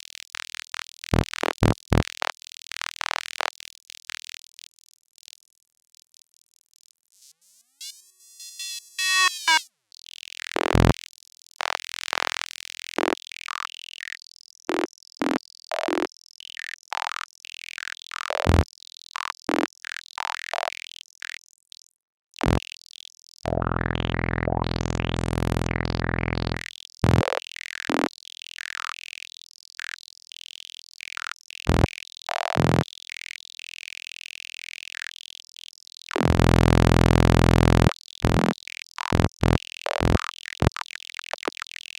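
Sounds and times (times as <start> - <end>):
robot chirps and bleeps: 7.8 - 9.7
low electronic buzz: 23.5 - 27.3, 36.2 - 38.5.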